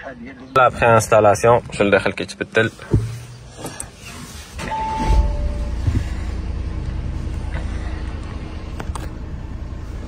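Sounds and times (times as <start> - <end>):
car engine starting and idling: 2.7 - 10.0
two-note falling chime: 4.7 - 5.8.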